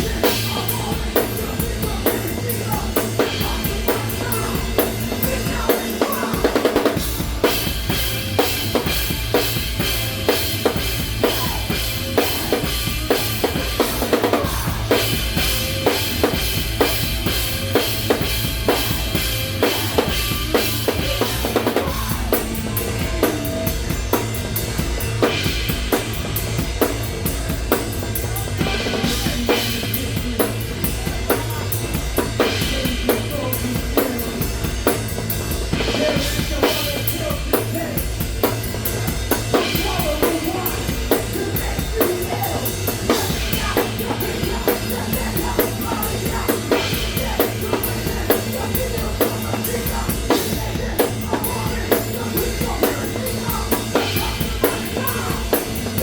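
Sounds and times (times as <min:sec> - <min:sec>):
bass line: 0:00.0 - 0:56.0
drum kit beat: 0:00.0 - 0:56.0
rock band playing: 0:00.0 - 0:56.0.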